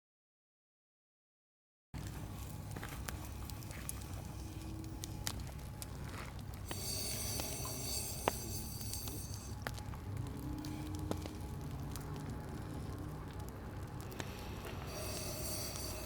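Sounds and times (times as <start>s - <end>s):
campfire crackling and popping: 2.0s - 16.0s
high hiss: 6.7s - 9.6s, 14.2s - 16.0s.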